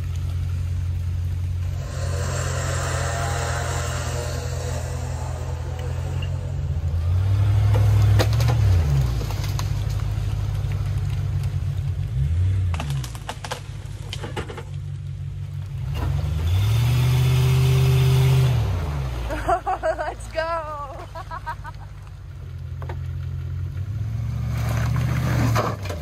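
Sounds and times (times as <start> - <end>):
car engine revving: 0.4 - 20.5.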